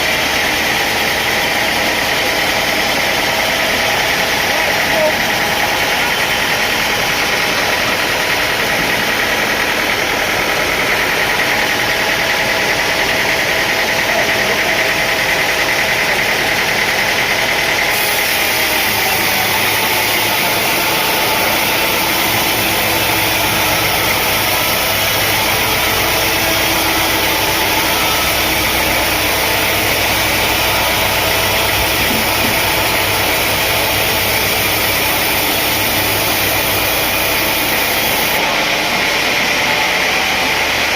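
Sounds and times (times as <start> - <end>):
sawmill machinery running: 0.0 - 40.9
deep low hum: 20.8 - 37.7.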